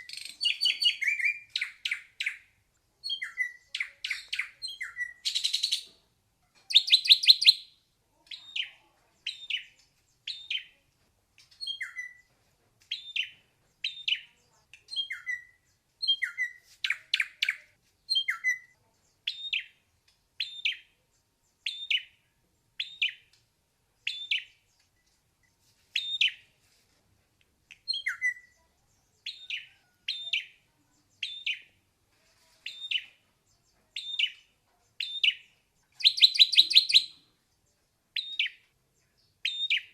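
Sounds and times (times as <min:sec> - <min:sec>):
bird singing sharp notes: 0:35.0 - 0:37.3.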